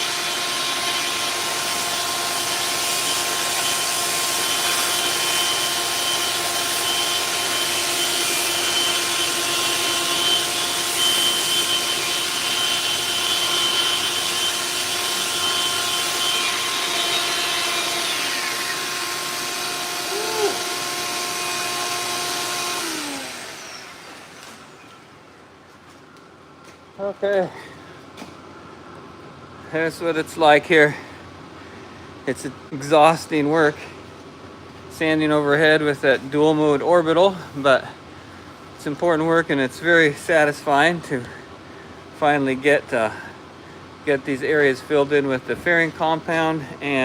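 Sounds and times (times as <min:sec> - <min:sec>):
orbital sander whine: 0:00.0 - 0:25.4.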